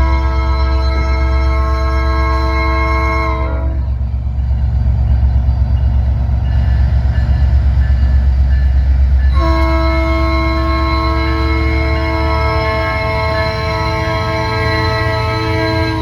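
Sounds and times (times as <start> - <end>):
locomotive air horn: 0.0 - 4.0, 9.3 - 16.0
train rumbling: 0.0 - 16.0.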